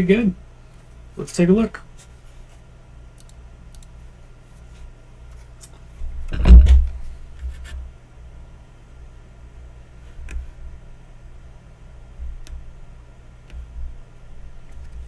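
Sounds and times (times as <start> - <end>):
steady low hum: 0.0 - 15.0
low thump with rattling: 6.3 - 7.1.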